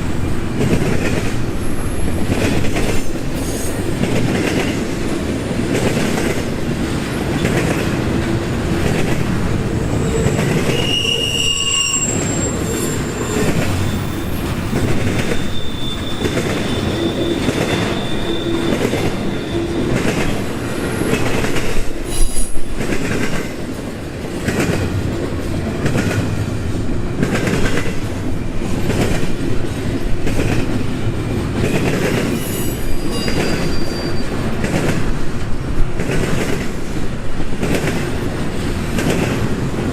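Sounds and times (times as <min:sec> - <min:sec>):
freight train wheels clattering: 0:00.0 - 0:39.9
high-pitched wheel squeals: 0:09.8 - 0:21.3, 0:22.1 - 0:22.7, 0:32.4 - 0:34.4.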